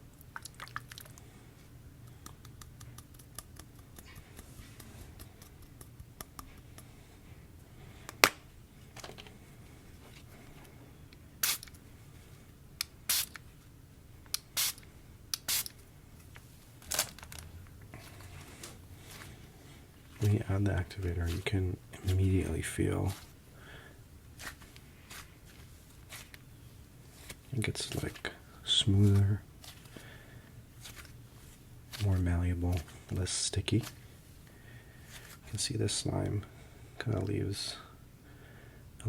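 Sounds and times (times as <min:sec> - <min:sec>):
hands squeezing crunchy slime: 0:00.2 - 0:01.2.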